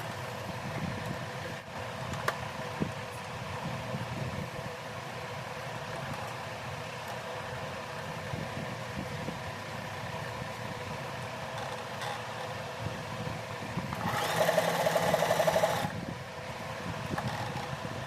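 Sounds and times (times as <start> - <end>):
sewing machine humming: 13.9 - 16.0.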